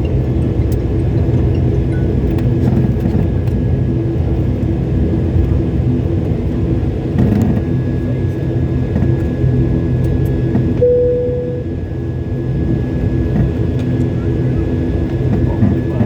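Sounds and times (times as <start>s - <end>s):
jet engine rumble in cabin: 0.0s - 16.0s
short steady tone: 10.8s - 11.8s
faint high whine: 10.8s - 11.9s.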